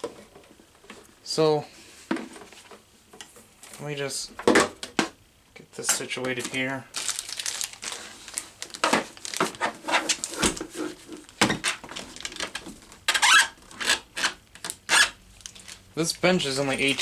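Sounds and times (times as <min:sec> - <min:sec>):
rustling scrapes: 0:07.0 - 0:12.2.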